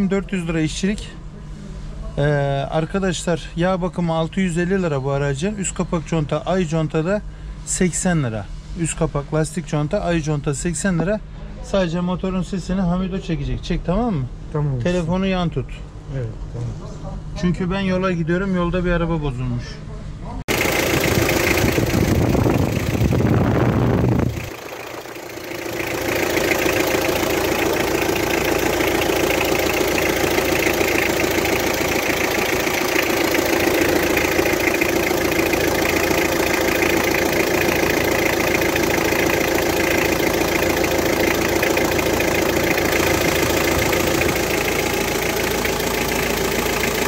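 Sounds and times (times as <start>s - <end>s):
loud low rumble: 20.5s - 46.7s
car engine idling: 20.5s - 47.0s.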